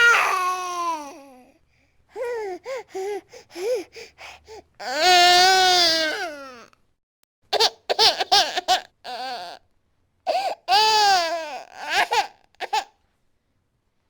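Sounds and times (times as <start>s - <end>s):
baby crying: 0.0s - 1.4s, 4.8s - 6.7s, 7.6s - 9.6s, 10.3s - 12.9s.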